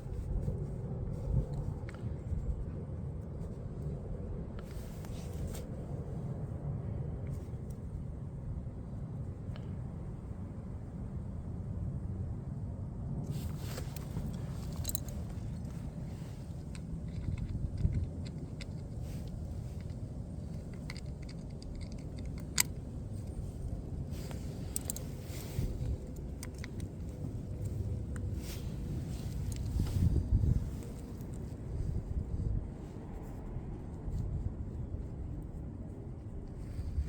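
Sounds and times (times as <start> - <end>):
low steady rumble: 0.0 - 37.0
sharp clicks and metallic clinks: 13.8 - 28.3.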